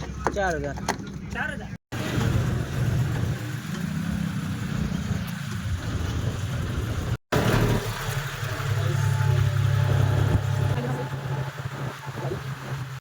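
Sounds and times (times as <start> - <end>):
tractor diesel engine running: 2.0 - 13.0.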